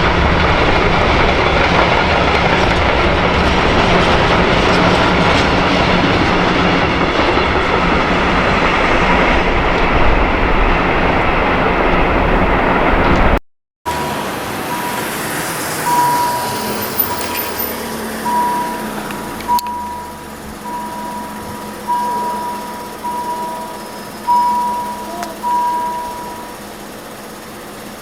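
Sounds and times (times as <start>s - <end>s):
electronic warning beeps: 13.9s - 26.7s.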